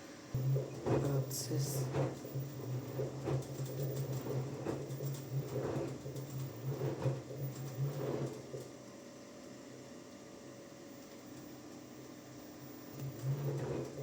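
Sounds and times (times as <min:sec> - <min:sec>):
washing machine motor hum: 0:00.3 - 0:14.0.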